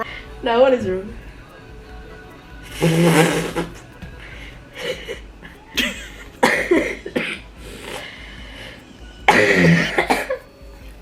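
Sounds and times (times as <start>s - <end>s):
person coughing harshly: 5.8s - 7.5s, 9.3s - 10.4s.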